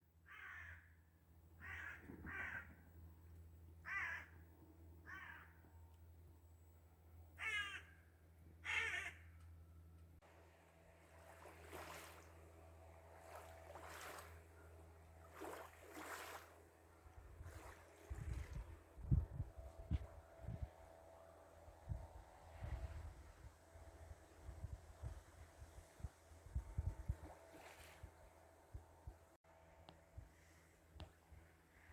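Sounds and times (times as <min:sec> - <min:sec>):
crow cawing: 0:00.3 - 0:00.9, 0:01.6 - 0:02.8, 0:03.8 - 0:04.4, 0:05.0 - 0:05.6, 0:07.4 - 0:08.0, 0:08.6 - 0:09.3.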